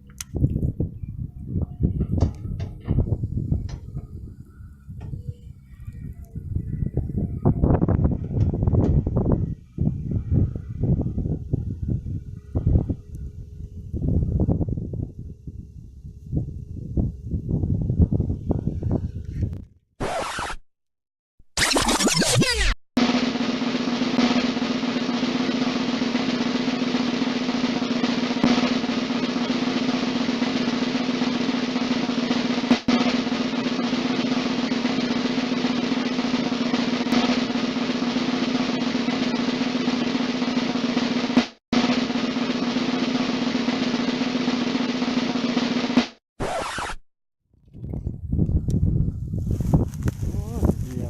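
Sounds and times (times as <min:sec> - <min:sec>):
background music with drums: 0:23.0 - 0:46.2.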